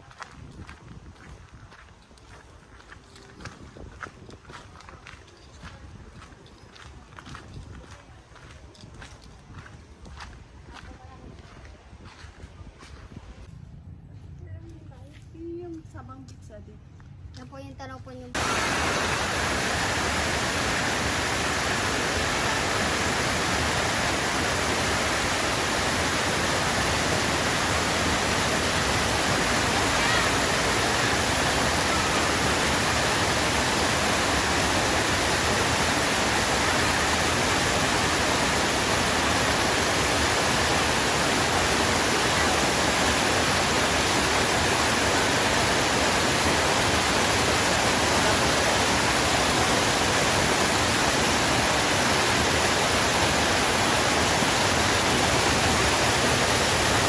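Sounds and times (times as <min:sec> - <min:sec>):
water rushing: 0:18.4 - 0:57.0.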